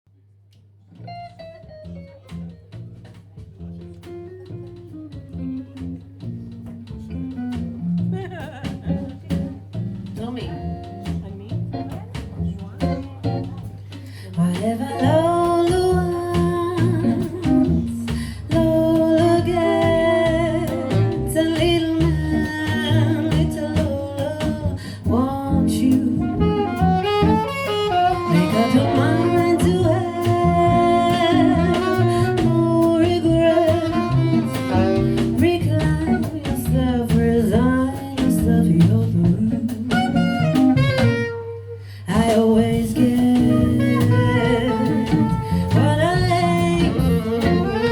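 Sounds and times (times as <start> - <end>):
double bass: 0.8 - 47.9
guitar: 0.8 - 47.9
drum kit: 1.0 - 47.9
saxophone: 19.1 - 23.8, 25.8 - 36.8, 39.9 - 47.9
person singing: 28.3 - 36.8, 42.1 - 47.9.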